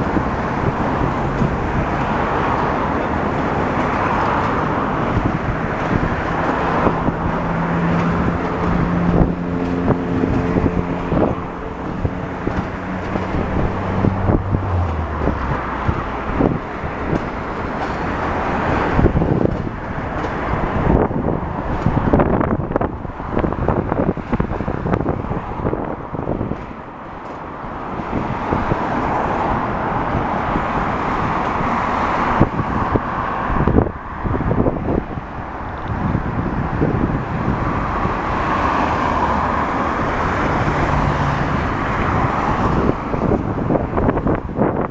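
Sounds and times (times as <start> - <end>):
engine drone: 0.0 - 18.6
road traffic passing: 0.0 - 44.9
wind buffeting microphone: 0.0 - 44.9.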